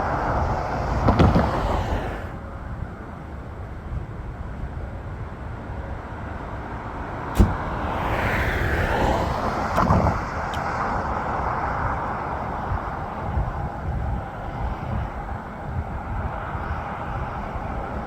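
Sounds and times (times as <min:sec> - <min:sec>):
rush of noise: 0:00.0 - 0:02.5, 0:07.2 - 0:18.0
vehicle rumble: 0:00.0 - 0:18.0.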